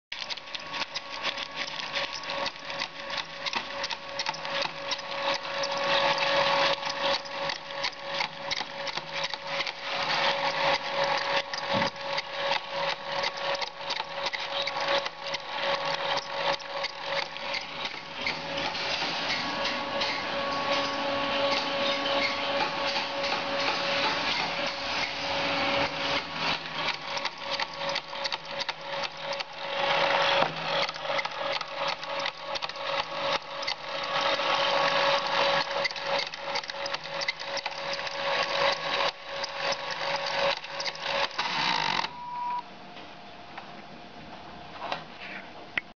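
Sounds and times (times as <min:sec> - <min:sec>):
rapid clicking rattle: 0:00.1 - 0:18.8, 0:26.7 - 0:42.1
antenna motor whining: 0:00.2 - 0:42.7.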